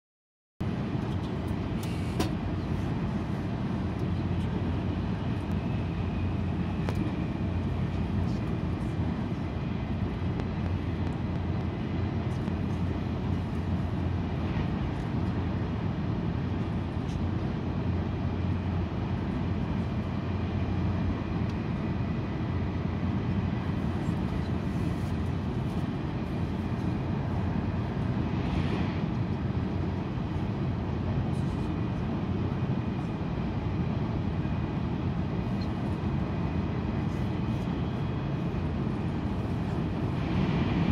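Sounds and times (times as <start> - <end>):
train rumble and air rush: 0.6 - 40.9.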